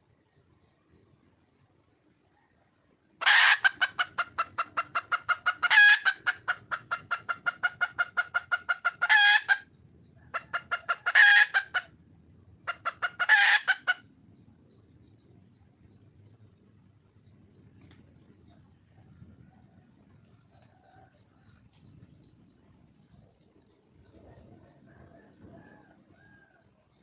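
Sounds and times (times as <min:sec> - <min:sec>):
hen drawn-out call: 0:03.2 - 0:09.7, 0:10.3 - 0:11.9, 0:12.7 - 0:14.0
hen clucking rapidly: 0:03.2 - 0:15.0.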